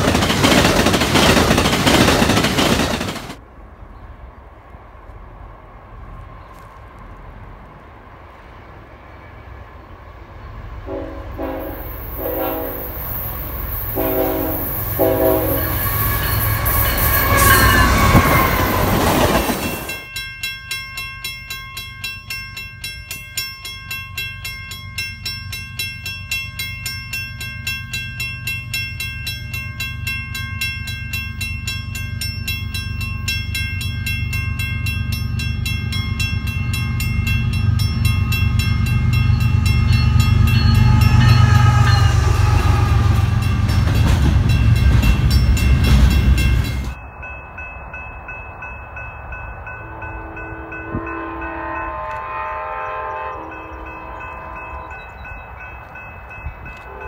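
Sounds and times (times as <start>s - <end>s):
distant freight train rumbling: 0.0s - 57.0s
train engine and wheels rushing: 0.0s - 57.0s
locomotive horn blasts: 10.8s - 13.2s, 13.8s - 18.9s, 39.0s - 43.8s, 49.7s - 55.2s, 56.8s - 57.0s
pulsing crossing bell ringing: 11.8s - 57.0s.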